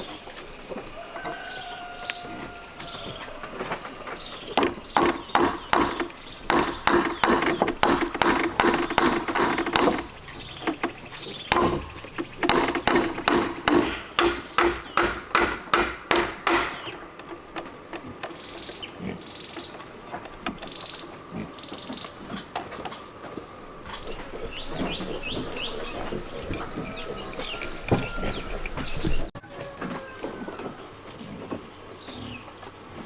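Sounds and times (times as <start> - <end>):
tool striking wood: 4.6 - 17.0.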